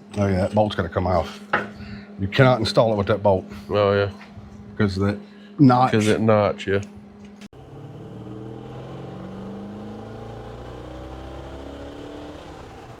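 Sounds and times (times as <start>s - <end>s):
machine hum rising in pitch: 7.5s - 13.0s.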